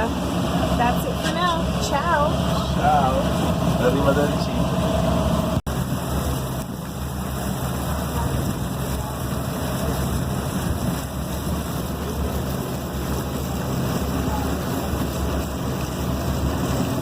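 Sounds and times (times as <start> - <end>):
boat engine humming: 0.0 - 17.0
water rushing: 0.0 - 17.0
wind on microphone: 4.5 - 17.0.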